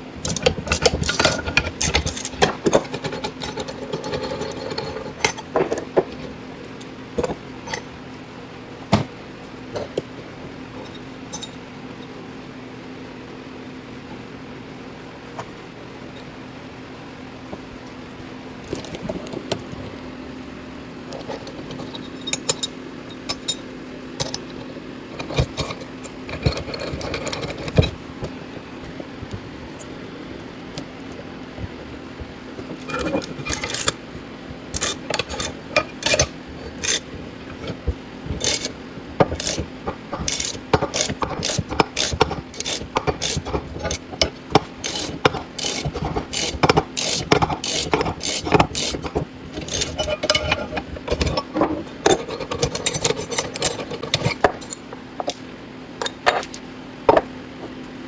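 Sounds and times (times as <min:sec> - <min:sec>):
steady low hum: 0:00.0 - 0:58.0
hand tools clanking on metal: 0:00.2 - 0:06.2, 0:21.2 - 0:28.4, 0:32.6 - 0:34.0, 0:34.7 - 0:57.3.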